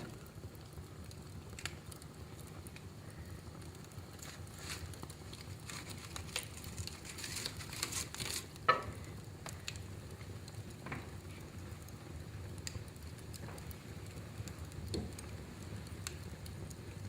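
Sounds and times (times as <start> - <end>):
fire hissing: 0.0 - 17.0
fire popping loudly: 0.0 - 17.0
wood fire crackling: 0.0 - 17.0.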